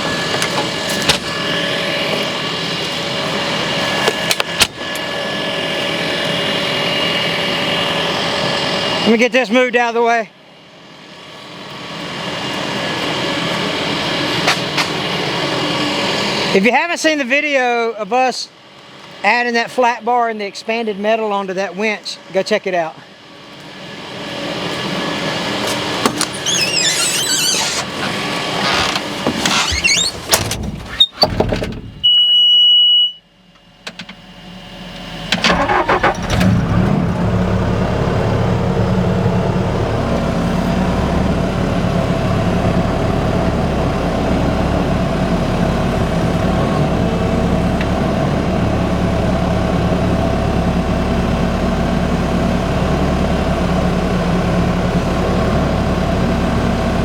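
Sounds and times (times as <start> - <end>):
diesel engine cranking and idling: 0.0 - 17.8, 22.8 - 32.2, 33.6 - 57.0
rattling and squeaking with knocks: 26.0 - 32.1
high warning beep: 32.0 - 33.2.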